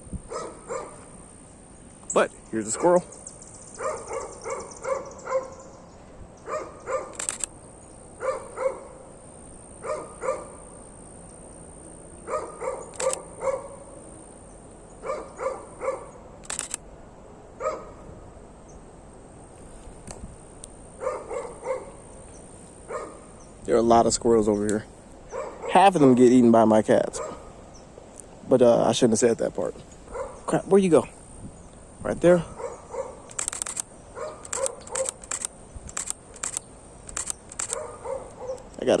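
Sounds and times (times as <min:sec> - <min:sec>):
dog barking: 0:00.3 - 0:01.0, 0:03.8 - 0:05.7, 0:06.5 - 0:07.2, 0:08.2 - 0:09.1, 0:09.8 - 0:10.6, 0:12.2 - 0:13.9, 0:15.0 - 0:16.2, 0:17.6 - 0:18.0, 0:21.0 - 0:22.0, 0:22.9 - 0:23.3, 0:25.3 - 0:25.9, 0:27.2 - 0:27.6, 0:30.1 - 0:30.5, 0:32.5 - 0:33.3, 0:34.2 - 0:35.2, 0:37.6 - 0:38.7
sharp clicks: 0:07.1 - 0:07.6, 0:12.8 - 0:13.4, 0:16.4 - 0:16.8, 0:33.2 - 0:38.9.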